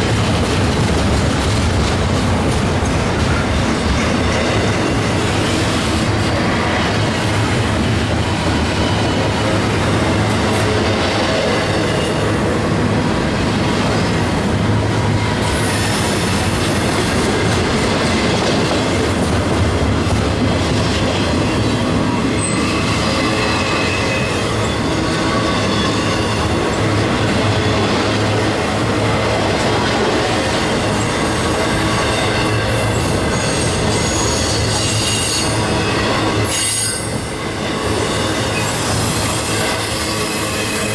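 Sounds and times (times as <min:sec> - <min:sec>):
freight train wheels rumbling on track: 0:00.0 - 0:40.9.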